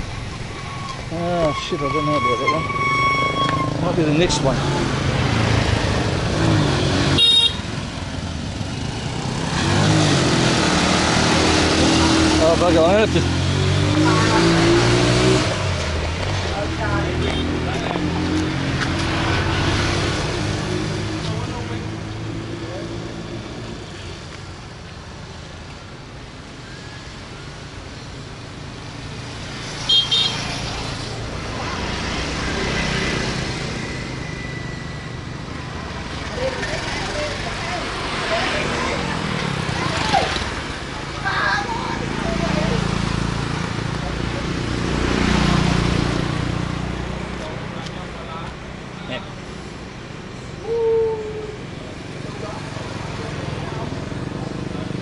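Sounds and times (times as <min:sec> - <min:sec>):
road traffic: 0:00.0 - 0:55.0
vehicle horn toot: 0:00.6 - 0:03.8, 0:07.1 - 0:07.7, 0:29.9 - 0:30.4.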